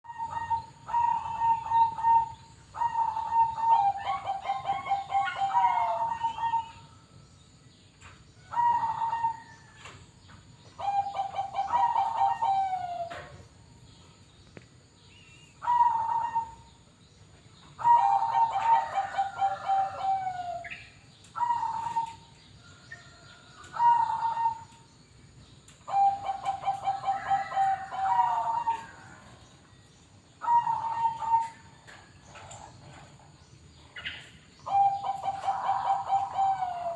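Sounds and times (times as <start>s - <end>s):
doves cooing: 0.0s - 7.0s, 8.4s - 10.0s, 10.7s - 13.5s, 15.6s - 16.7s, 17.8s - 20.8s, 21.4s - 24.9s, 25.9s - 29.5s, 30.4s - 36.9s.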